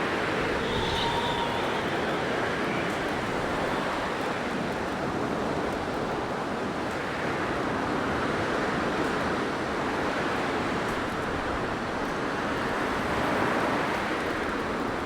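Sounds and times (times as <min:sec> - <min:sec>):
blizzard wind blowing: 0:00.0 - 0:05.7.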